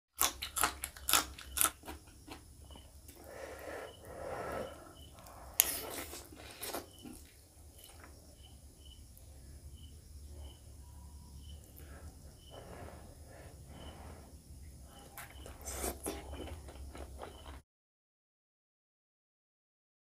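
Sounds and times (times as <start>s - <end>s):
crunching bites into chilli: 0.1s - 2.8s
wet chewing: 0.1s - 8.5s, 14.9s - 17.6s.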